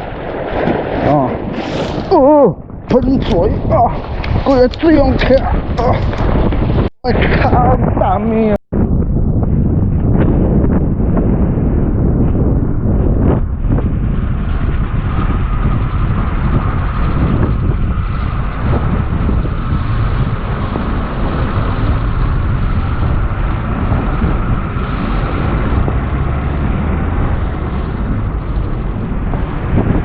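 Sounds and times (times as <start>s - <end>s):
waves splashing against rocks: 0.0s - 2.1s
wind buffeting microphone: 0.0s - 30.0s.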